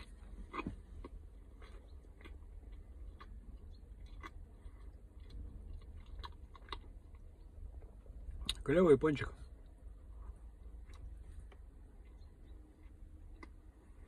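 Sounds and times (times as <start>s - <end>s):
person chewing soft food: 0.0s - 8.6s, 9.6s - 14.0s.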